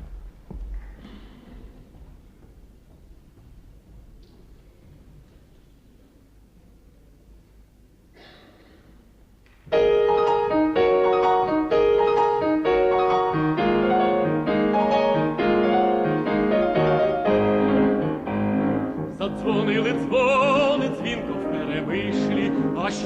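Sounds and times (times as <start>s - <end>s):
solo piano: 9.7s - 23.0s.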